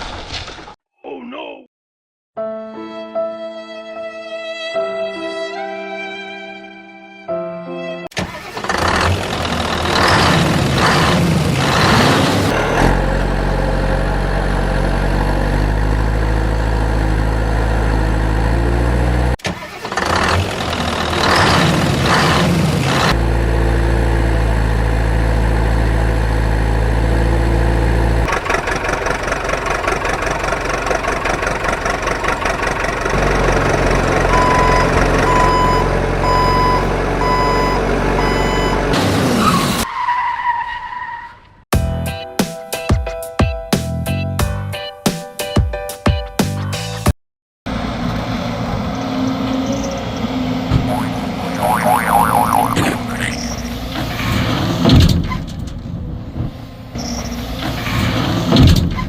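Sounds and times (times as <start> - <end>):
heavy machinery engines revving: 8.2 - 39.8.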